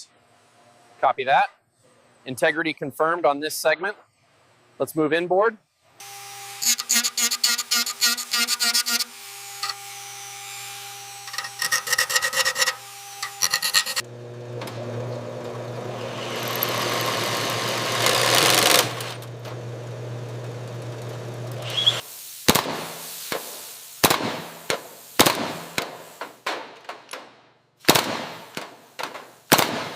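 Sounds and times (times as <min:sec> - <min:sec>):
rapid rasping strokes: 0:11.2 - 0:14.0
hiss: 0:21.6 - 0:26.5.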